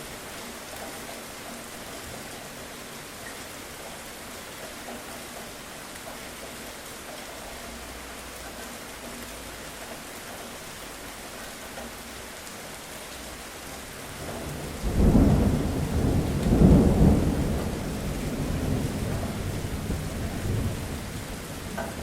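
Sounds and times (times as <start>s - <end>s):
steady rain falling: 0.0s - 22.0s
thunder rolling: 14.1s - 22.0s.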